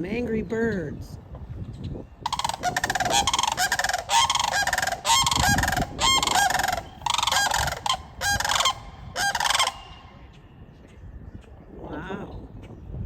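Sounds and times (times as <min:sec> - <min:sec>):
cranes giving rolling calls: 0:02.3 - 0:10.3.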